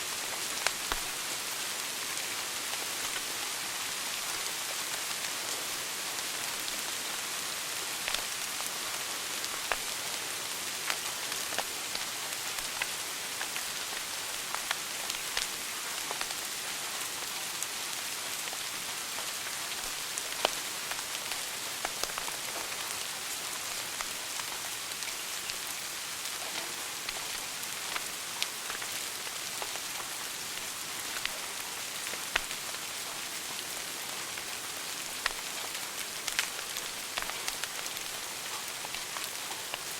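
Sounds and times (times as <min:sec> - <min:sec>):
fire crackling and popping: 0:00.6 - 0:01.2, 0:02.7 - 0:03.3, 0:08.0 - 0:10.0, 0:10.8 - 0:17.4, 0:18.0 - 0:39.9.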